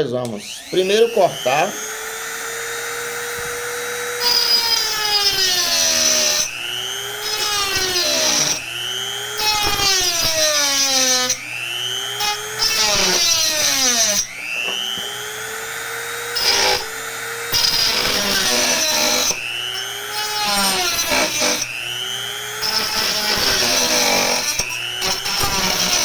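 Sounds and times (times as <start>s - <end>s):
rotary tool motor whine: 0.2s - 26.0s.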